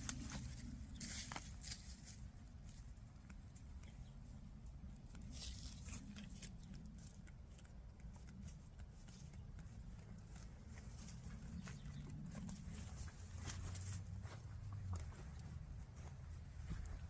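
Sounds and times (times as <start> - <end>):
chickens pecking and scratching: 0.0 - 17.0
low rumble: 0.0 - 17.0.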